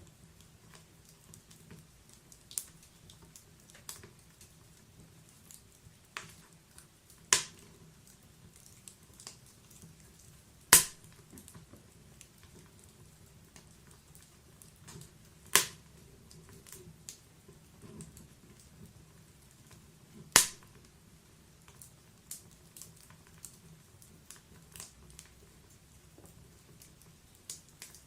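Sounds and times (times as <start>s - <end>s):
wood fire crackling: 0.0s - 28.0s
loud pops from fire: 0.8s - 4.5s, 5.2s - 7.7s, 10.6s - 12.9s, 13.5s - 20.9s.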